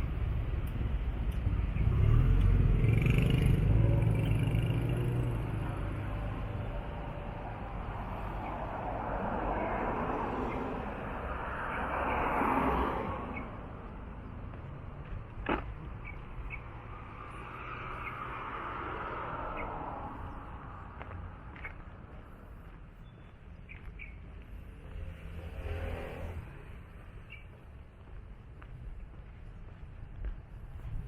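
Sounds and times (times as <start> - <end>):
bird chirps: 16.0 - 16.7, 23.0 - 24.3, 27.2 - 27.6.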